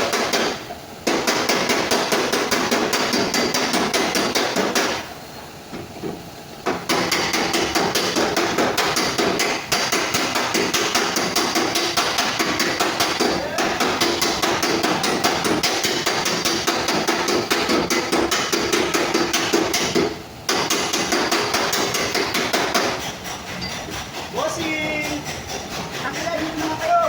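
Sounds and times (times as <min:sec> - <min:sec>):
hammer tapping steel panel: 0:06.6 - 0:23.0.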